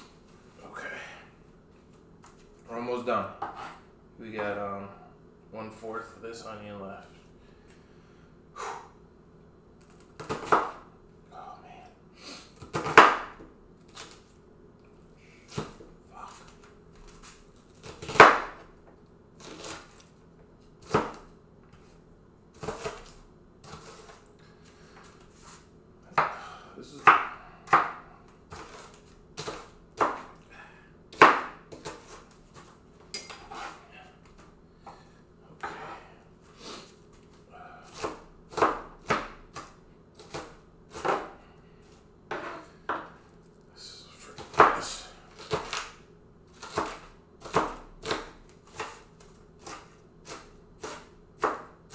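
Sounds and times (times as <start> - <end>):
knife chopping onion on board: 10.2 - 10.9, 12.6 - 14.1, 15.5 - 18.7, 20.8 - 21.3, 22.5 - 24.2, 26.1 - 30.4, 31.1 - 35.0, 37.8 - 41.4, 42.3 - 43.2, 44.3 - 51.9.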